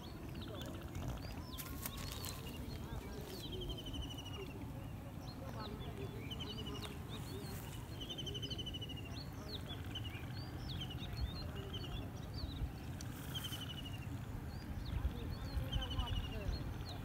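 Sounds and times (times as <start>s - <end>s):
birds chirping and trilling: 0.0s - 17.0s.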